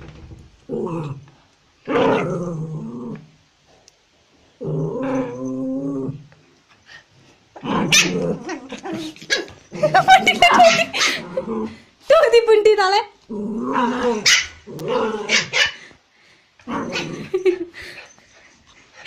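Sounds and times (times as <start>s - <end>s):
dogs growling: 0.7s - 3.3s, 4.6s - 6.4s, 7.5s - 11.9s, 13.2s - 15.9s, 16.6s - 18.0s.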